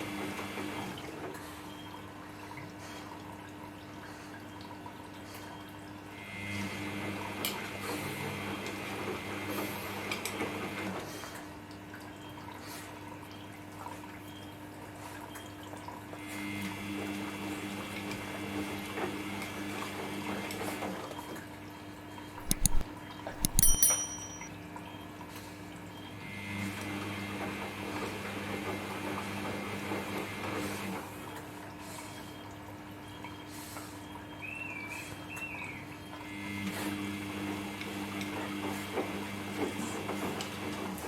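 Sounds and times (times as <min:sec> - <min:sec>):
sharp clicks: 0:22.4 - 0:22.8, 0:23.4 - 0:24.5.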